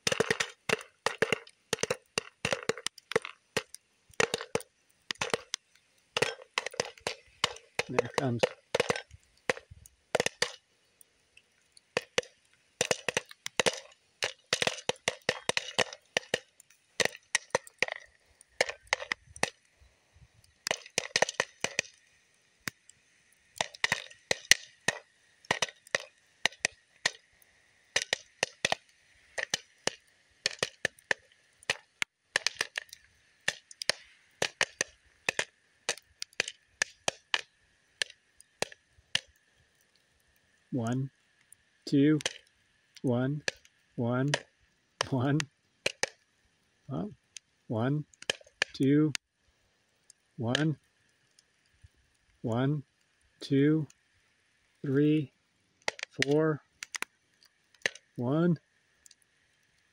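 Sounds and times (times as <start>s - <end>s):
popcorn popping: 0.0s - 10.6s, 11.8s - 19.6s, 20.5s - 22.0s, 23.6s - 27.2s, 27.9s - 39.4s, 43.3s - 46.2s, 48.1s - 48.8s, 55.8s - 57.2s, 57.8s - 58.2s.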